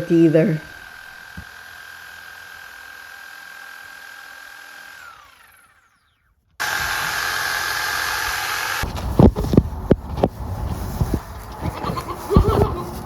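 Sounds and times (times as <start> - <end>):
electric power tool whining: 0.0 - 10.0.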